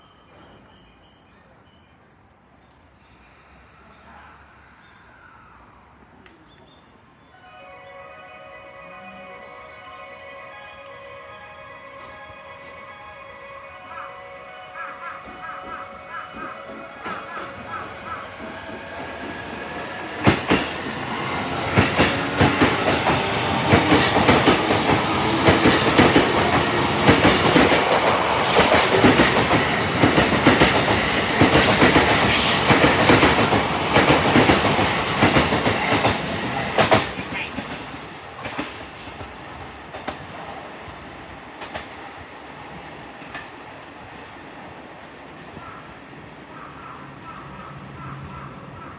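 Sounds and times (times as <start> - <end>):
electric train passing: 7.0 - 48.9
train wheels clacking on rail joints: 15.3 - 40.6, 41.6 - 42.1.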